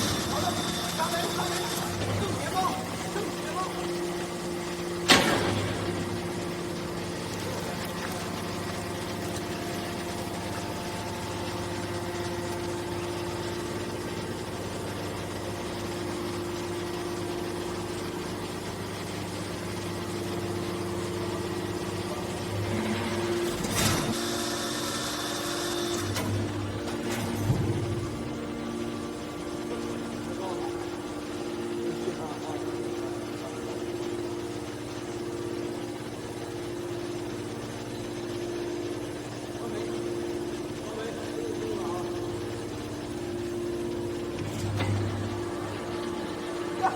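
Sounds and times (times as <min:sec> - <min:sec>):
hydraulic baler humming: 0:00.0 - 0:46.9.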